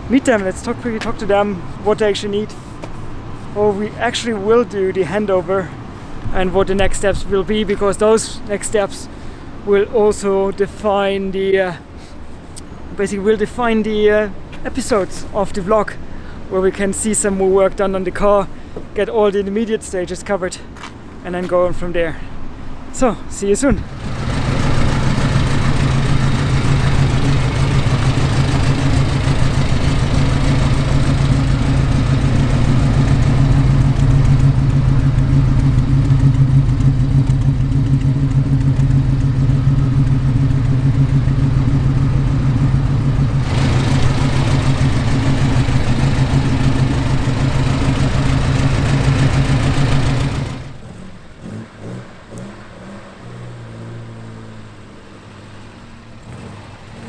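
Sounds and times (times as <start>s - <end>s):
car engine running: 0.0s - 8.1s, 23.7s - 53.1s
road and wind noise: 0.0s - 57.0s.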